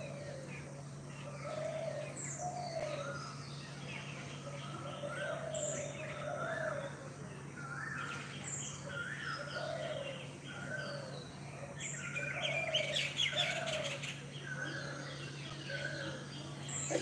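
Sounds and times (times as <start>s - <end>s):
birds calling: 0.0s - 17.0s
steady low hum: 0.0s - 17.0s.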